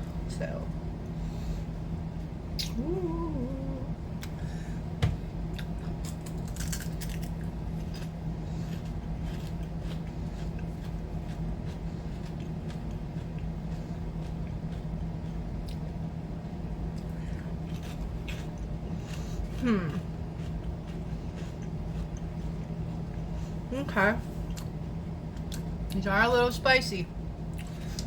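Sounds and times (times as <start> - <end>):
steady low hum: 0.0 - 28.0
crunching and chewing snacks: 5.6 - 16.0, 16.7 - 23.1.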